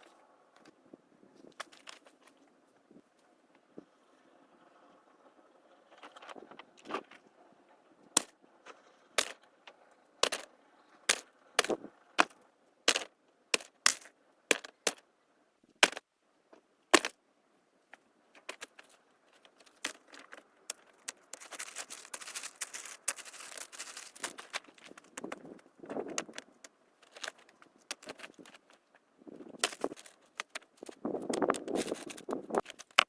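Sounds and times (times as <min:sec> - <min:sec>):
dense crackling rustle: 0:18.3 - 0:33.0.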